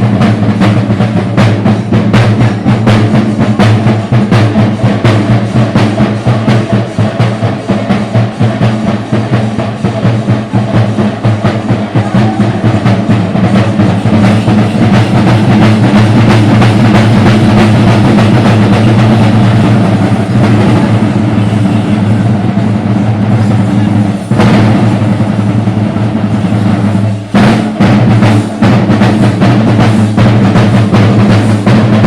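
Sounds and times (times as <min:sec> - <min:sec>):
drums beating fast: 0:00.0 - 0:32.0.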